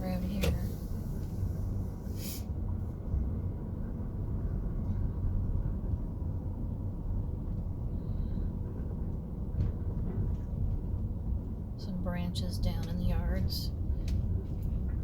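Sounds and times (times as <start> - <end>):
car engine and tyres rumbling: 0.0 - 15.0
brief hiss: 2.1 - 2.5.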